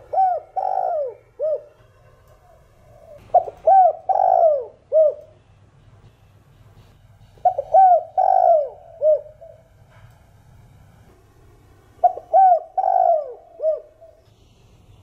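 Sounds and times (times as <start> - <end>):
dove cooing: 0.0 - 5.4, 7.4 - 9.7, 12.0 - 14.2.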